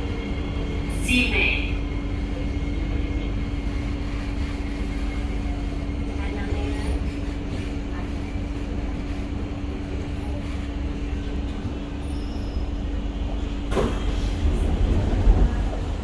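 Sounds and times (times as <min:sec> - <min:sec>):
train electrical hum: 0:00.0 - 0:16.0.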